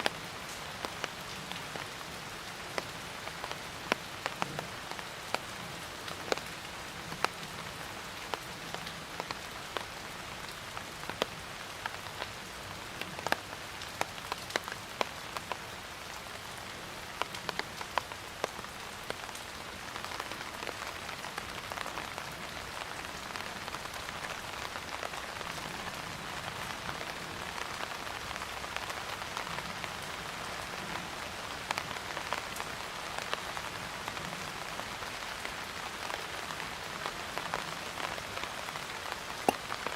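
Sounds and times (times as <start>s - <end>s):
raindrops ticking: 0.0s - 25.5s, 38.6s - 39.9s
rain falling on a surface: 0.0s - 39.9s.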